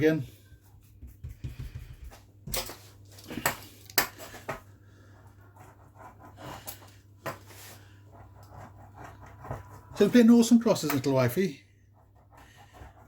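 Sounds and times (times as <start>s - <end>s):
pizza cutter scraping strokes: 7.4s - 10.9s, 12.0s - 13.0s.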